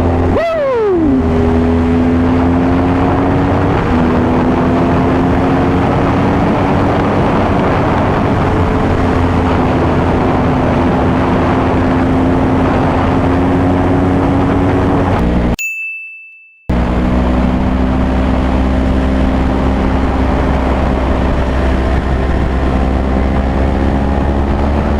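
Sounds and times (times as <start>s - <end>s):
wind noise on microphone: 1.1s - 15.6s, 16.7s - 24.9s
high ding: 15.6s - 16.7s.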